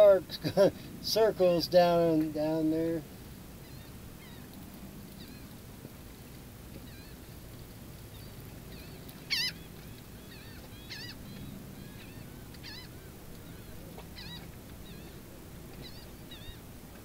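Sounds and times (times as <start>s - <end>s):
short high bird calls: 8.1s - 15.2s, 15.8s - 16.6s.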